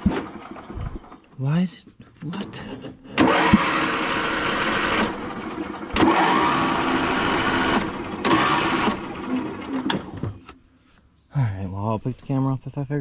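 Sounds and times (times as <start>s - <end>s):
engine cranking on electric starter: 0.0s - 1.3s, 2.2s - 10.2s.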